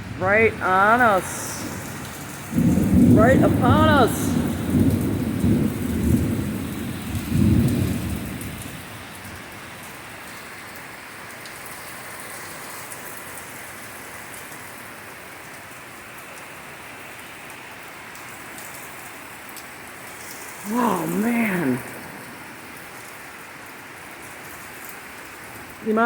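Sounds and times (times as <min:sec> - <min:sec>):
torrential rain hissing: 0:00.0 - 0:26.0
close thunder rumbling: 0:01.2 - 0:08.9.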